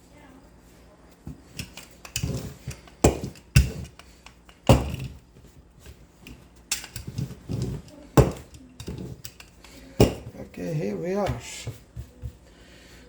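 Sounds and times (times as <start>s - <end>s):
cookware knocking and clunking: 6.7s - 9.4s, 10.0s - 10.4s.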